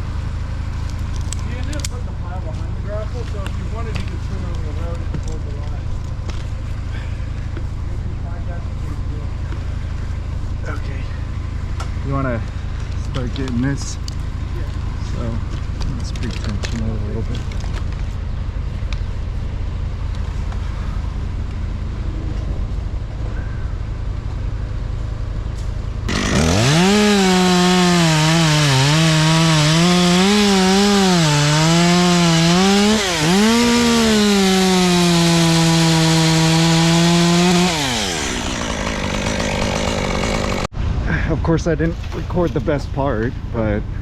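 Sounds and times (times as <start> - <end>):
chainsaw cutting: 26.1 - 40.7.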